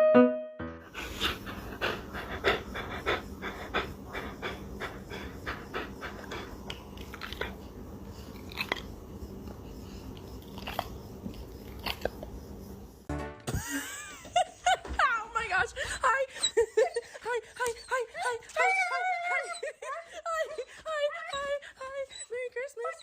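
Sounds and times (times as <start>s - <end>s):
dog making short noisy breaths: 0.9s - 8.4s.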